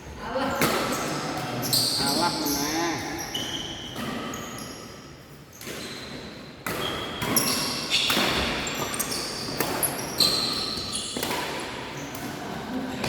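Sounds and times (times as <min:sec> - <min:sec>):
shoes squeaking on floor: 0:01.0 - 0:04.9, 0:06.8 - 0:11.3.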